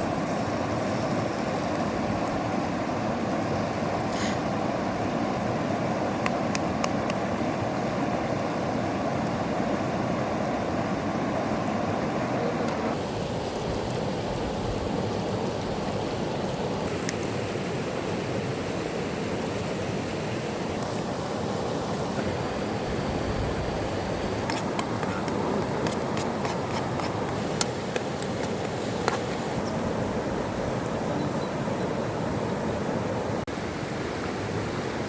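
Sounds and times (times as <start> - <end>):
river flowing: 0.0 - 35.0.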